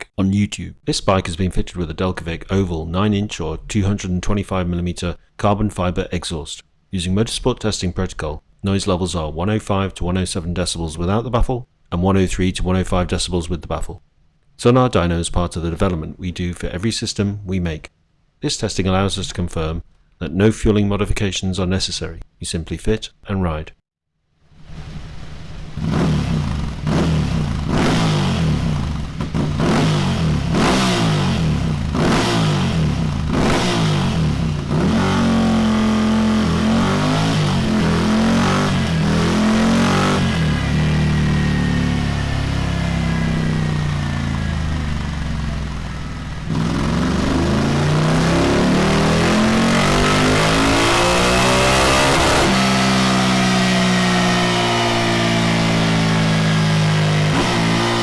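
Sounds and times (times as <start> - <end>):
motorcycle engine revving: 24.6 - 58.0.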